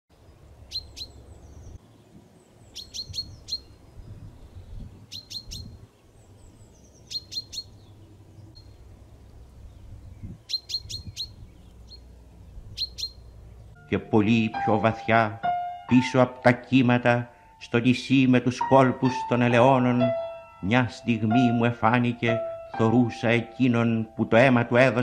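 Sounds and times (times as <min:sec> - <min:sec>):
songbird singing high notes: 0:00.7 - 0:01.8, 0:02.7 - 0:05.8, 0:09.7 - 0:12.1, 0:12.7 - 0:25.0.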